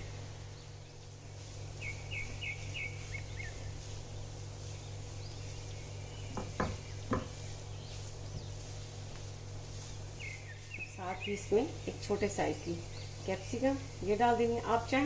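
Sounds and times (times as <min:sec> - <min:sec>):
low hum: 0:00.0 - 0:14.8
bird chirping: 0:01.8 - 0:08.7, 0:09.8 - 0:13.9
sharp knocks: 0:06.3 - 0:07.4.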